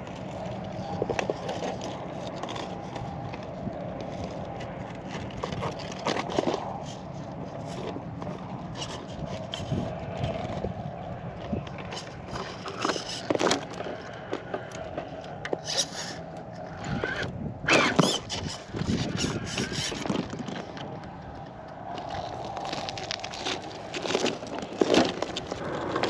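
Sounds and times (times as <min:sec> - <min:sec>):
tires scraping on stone: 0:00.0 - 0:26.0
electric motor whine: 0:15.6 - 0:20.0.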